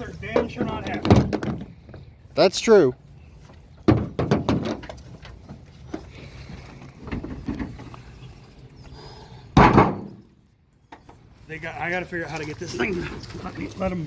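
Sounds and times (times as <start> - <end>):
loud thump: 9.6 - 10.3.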